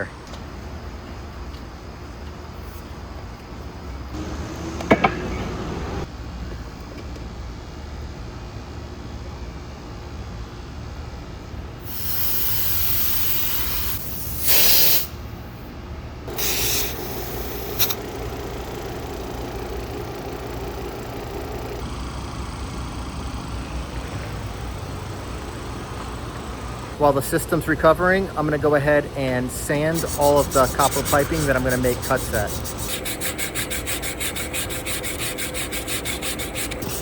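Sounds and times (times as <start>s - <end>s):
gas hissing from hoses: 11.8s - 15.2s, 16.3s - 18.2s, 29.9s - 37.0s
steady machine hum: 15.1s - 37.0s.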